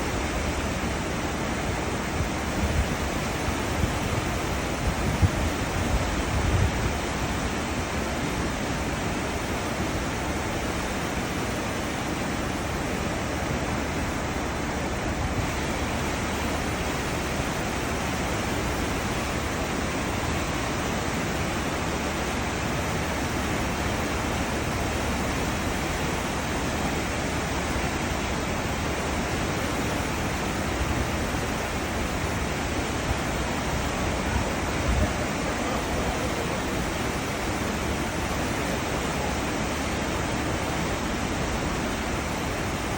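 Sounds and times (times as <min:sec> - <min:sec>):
ship wake rushing water: 0:00.0 - 0:42.9.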